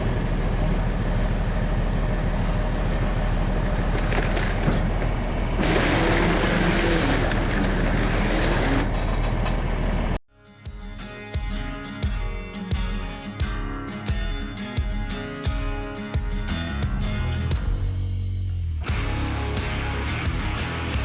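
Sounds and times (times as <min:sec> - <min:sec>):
large engine running: 0:00.0 - 0:10.2, 0:18.8 - 0:21.0.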